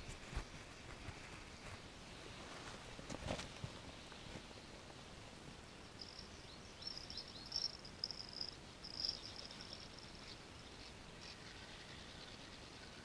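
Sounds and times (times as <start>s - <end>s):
outdoor background noise: 0.0s - 13.0s
songbird singing: 5.6s - 13.0s.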